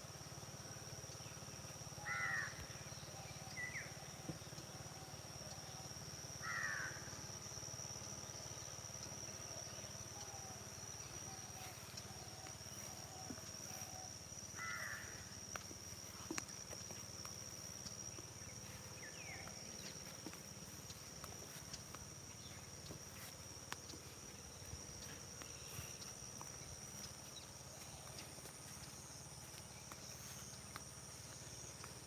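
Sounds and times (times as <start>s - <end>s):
high-pitched insect drone: 0.0s - 32.0s
crow cawing: 2.0s - 2.6s, 6.4s - 7.1s, 14.6s - 15.2s.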